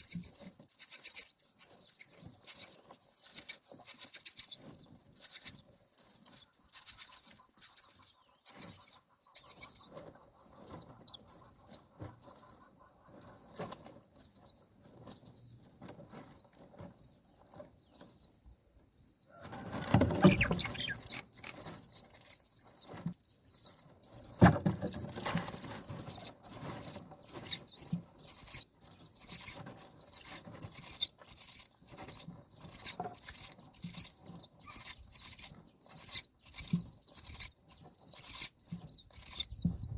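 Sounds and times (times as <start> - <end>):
rustling with dull thuds: 19.4 - 21.2, 24.2 - 27.2
nestlings begging calls: 19.8 - 39.6.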